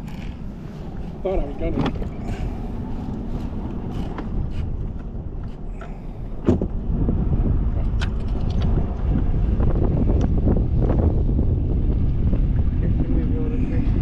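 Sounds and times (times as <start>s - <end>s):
low rumble: 0.0s - 14.0s
wind buffeting microphone: 0.0s - 14.0s
gear knocking and clicking: 3.2s - 6.8s.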